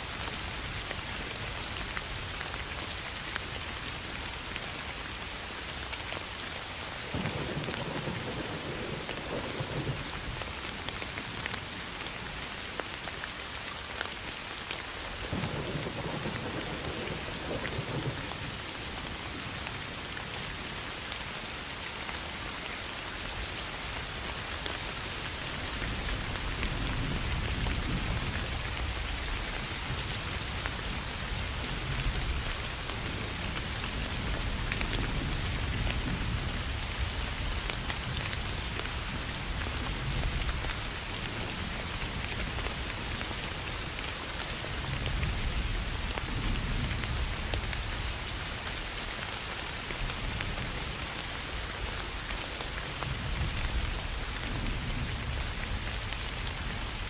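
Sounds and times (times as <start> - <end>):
rain falling on grass: 0.0 - 57.0
thunder rumbling: 7.1 - 10.3, 15.2 - 18.6.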